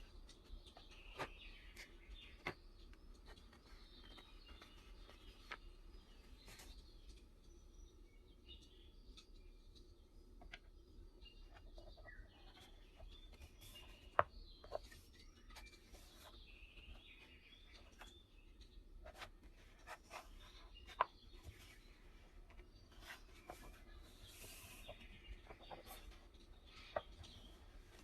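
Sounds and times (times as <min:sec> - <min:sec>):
small birds chirping: 0:00.0 - 0:28.0
soft rubbing of notebook: 0:11.5 - 0:18.2, 0:19.0 - 0:28.0.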